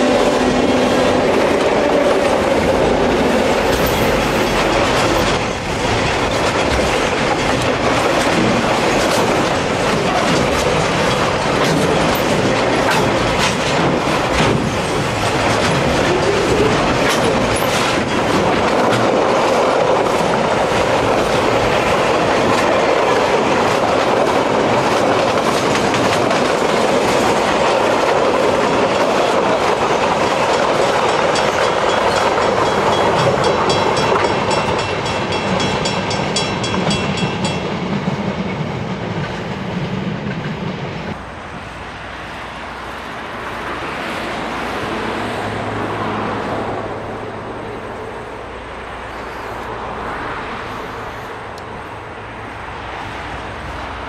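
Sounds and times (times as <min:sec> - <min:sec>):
wheels clacking over rail joints: 0:00.0 - 0:41.3
freight train wheel and rail noise: 0:00.0 - 0:54.0.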